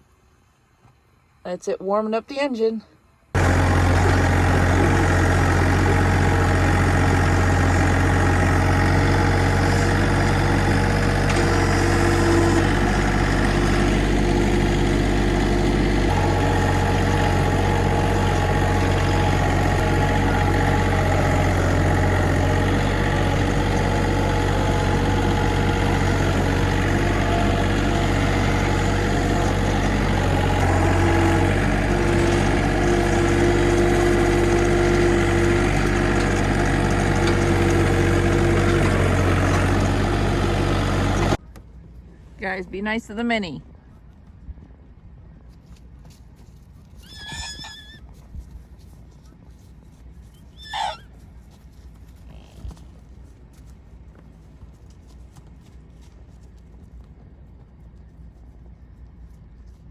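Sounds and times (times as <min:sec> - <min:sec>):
tractor engine idling: 0:03.4 - 0:41.5.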